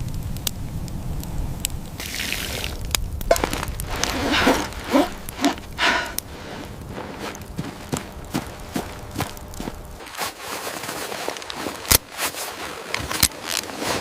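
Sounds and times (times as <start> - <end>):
low steady rumble: 2.6 - 10.0
footsteps crunching in snow: 3.3 - 14.0.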